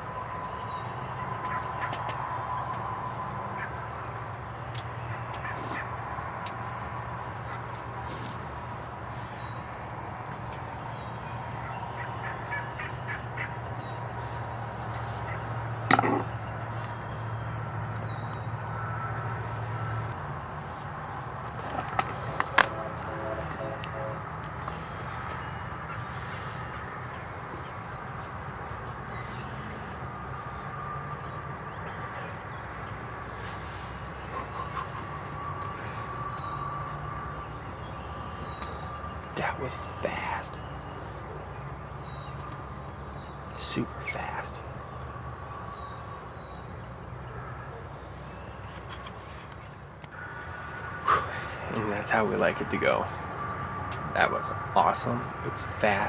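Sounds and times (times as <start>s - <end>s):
songbirds chirping: 0.0s - 56.0s
wild turkeys calling: 0.0s - 56.0s.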